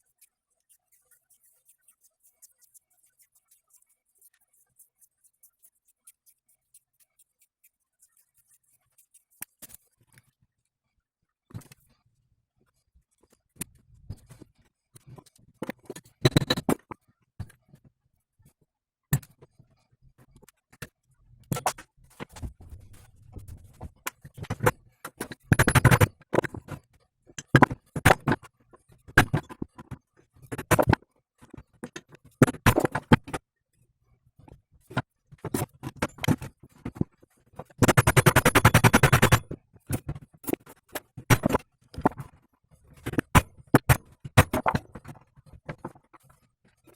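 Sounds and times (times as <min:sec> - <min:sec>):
fast rattling clicks: 0:24.5 - 0:26.7, 0:37.8 - 0:39.6.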